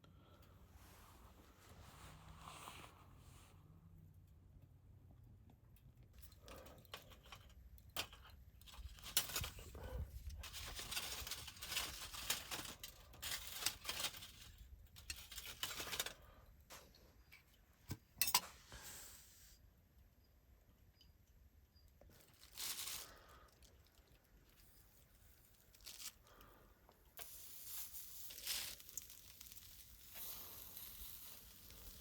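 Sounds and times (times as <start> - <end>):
rustling and crinkling: 6.1 - 19.3, 21.9 - 32.0.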